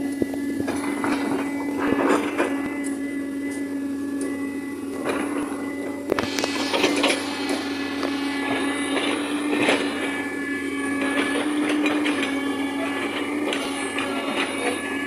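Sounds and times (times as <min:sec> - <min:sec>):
excavator engine and hydraulic whine: 0:00.0 - 0:15.0
metallic clanks and scrapes: 0:06.2 - 0:10.3.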